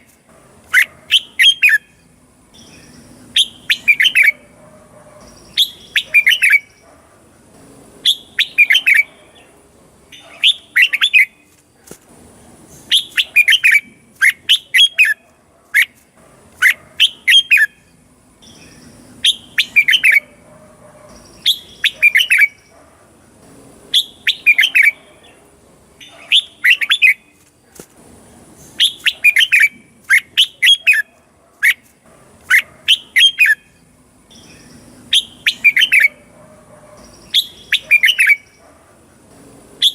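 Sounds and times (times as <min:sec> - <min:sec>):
bird singing sweeping notes: 0:00.7 - 0:04.6, 0:05.2 - 0:06.8, 0:08.0 - 0:09.5, 0:17.0 - 0:20.4, 0:21.1 - 0:22.7, 0:32.9 - 0:36.3, 0:37.0 - 0:38.6.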